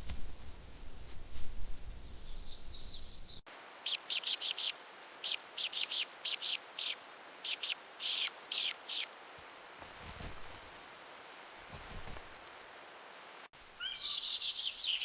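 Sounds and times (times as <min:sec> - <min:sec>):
low wind rumble: 0:00.0 - 0:03.4
high warbling bird song: 0:01.9 - 0:09.1, 0:13.8 - 0:15.0.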